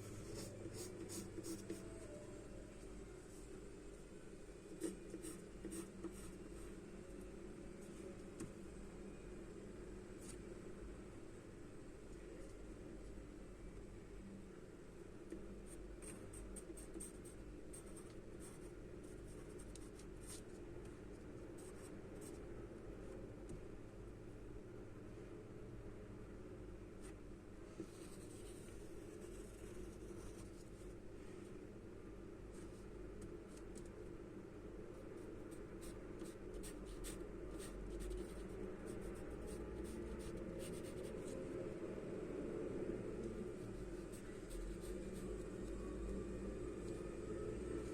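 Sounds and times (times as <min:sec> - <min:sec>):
steady low hum: 0:00.0 - 0:47.9
pencil scratching on paper: 0:00.1 - 0:02.2, 0:04.7 - 0:06.8, 0:15.7 - 0:20.5, 0:35.2 - 0:41.3, 0:43.6 - 0:45.5
charcoal scratching on paper: 0:00.2 - 0:02.2, 0:35.5 - 0:41.3.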